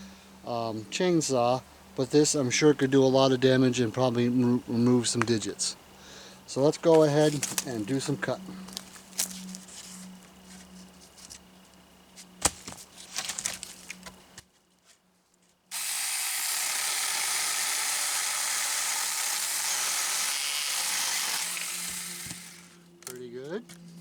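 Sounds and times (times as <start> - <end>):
electric chainsaw cutting wood: 15.7 - 22.9.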